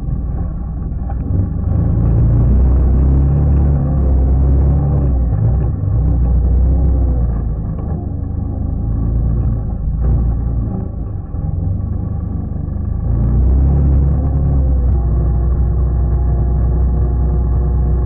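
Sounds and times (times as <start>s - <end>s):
quad bike engine revving: 1.2s - 7.3s.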